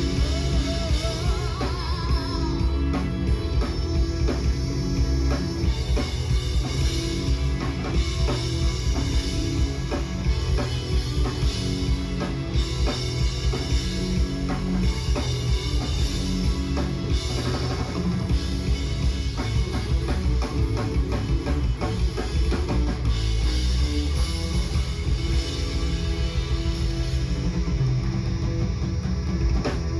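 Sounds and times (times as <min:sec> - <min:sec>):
live rock band playing: 0:00.0 - 0:29.9.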